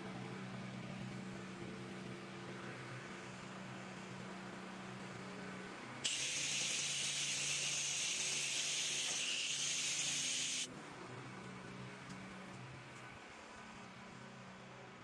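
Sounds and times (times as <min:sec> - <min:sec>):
sprayer hissing: 0:06.1 - 0:10.7.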